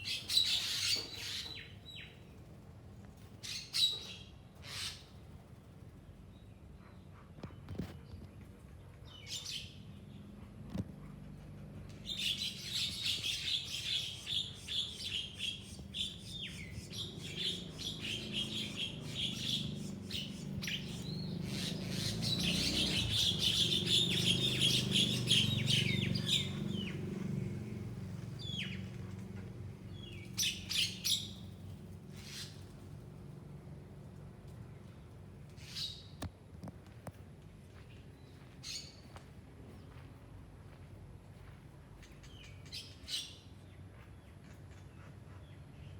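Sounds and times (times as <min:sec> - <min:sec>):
birds chirping and squawking: 0:00.0 - 0:02.2, 0:12.0 - 0:29.0, 0:29.9 - 0:32.9.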